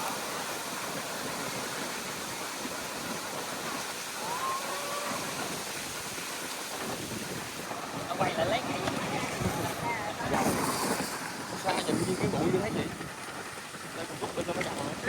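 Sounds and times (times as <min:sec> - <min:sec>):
river water rushing: 0:00.0 - 0:15.0
wind: 0:00.0 - 0:15.0.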